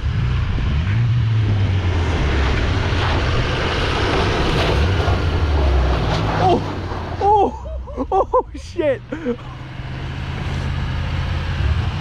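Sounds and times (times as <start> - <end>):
car engine revving: 0.0 - 12.0
wind: 0.0 - 12.0
tyres in snow: 0.9 - 12.0
person shouting: 7.2 - 7.7, 8.3 - 9.4.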